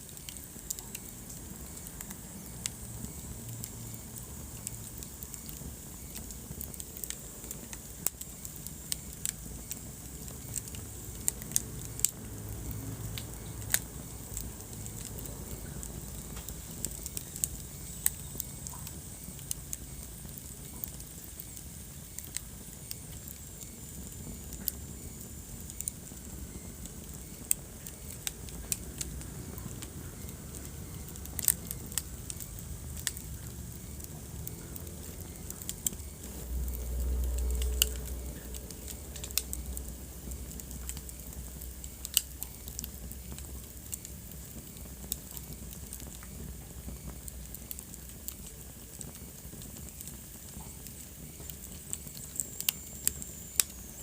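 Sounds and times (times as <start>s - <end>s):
wood fire crackling and popping: 0.0s - 54.0s
low rumble: 28.3s - 42.1s.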